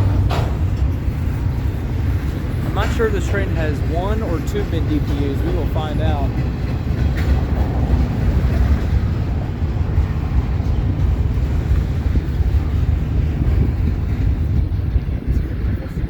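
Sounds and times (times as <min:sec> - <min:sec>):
freight train rumbling past: 0:00.0 - 0:16.0
wind buffeting microphone: 0:00.0 - 0:16.0.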